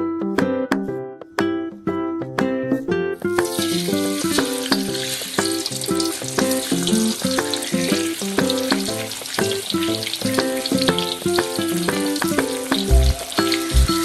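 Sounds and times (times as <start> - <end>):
plucked-string background music: 0.0 - 14.0
food sizzling in hot oil: 3.3 - 14.0.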